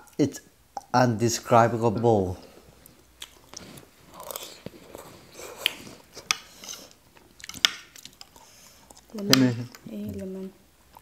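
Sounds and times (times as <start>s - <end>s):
chewing noodles: 2.8s - 9.2s.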